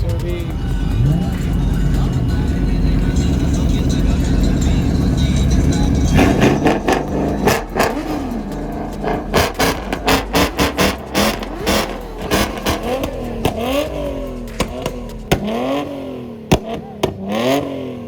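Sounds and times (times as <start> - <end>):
car engine revving: 0.0 - 18.0
exhaust pops: 0.0 - 18.0
loud exhaust crack: 0.0 - 18.0.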